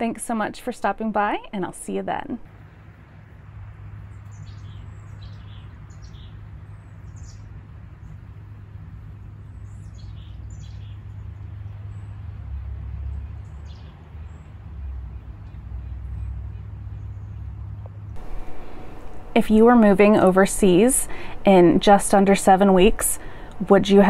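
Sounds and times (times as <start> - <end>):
steady low rumble: 0.0 - 24.0
small birds chirping: 4.0 - 8.5, 9.4 - 12.2, 13.4 - 14.5.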